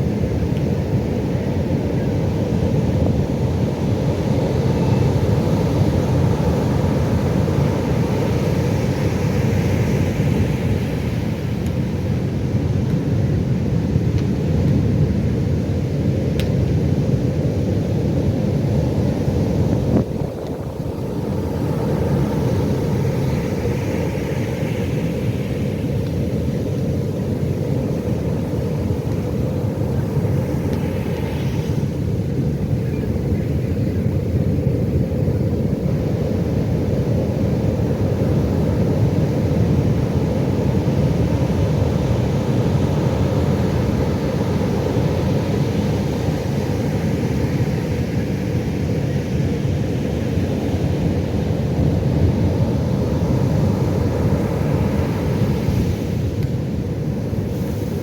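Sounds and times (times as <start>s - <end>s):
surf washing: 0.0s - 58.0s
waves breaking: 18.6s - 33.8s, 35.6s - 58.0s.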